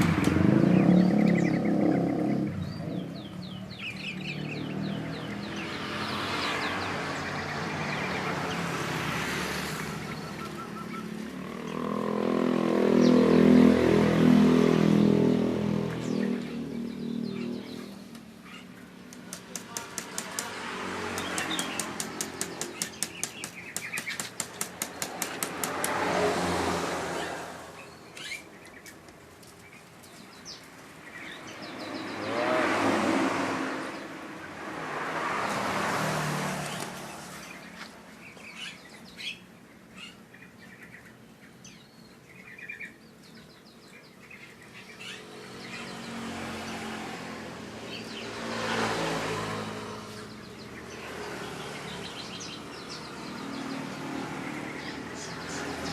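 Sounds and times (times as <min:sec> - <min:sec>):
small birds chirping: 0:00.0 - 0:55.9
vehicles passing by: 0:00.0 - 0:55.9
fast even clicks: 0:21.2 - 0:26.0.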